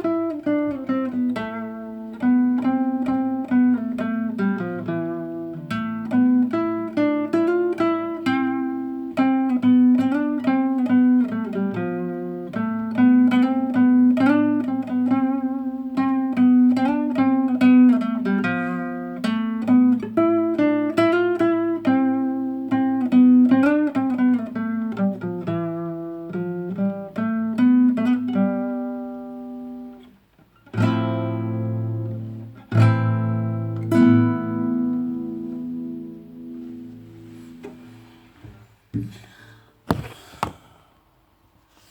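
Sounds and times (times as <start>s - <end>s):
strummed guitar chords: 0.0s - 30.0s
fingerpicked classical guitar: 0.0s - 39.2s.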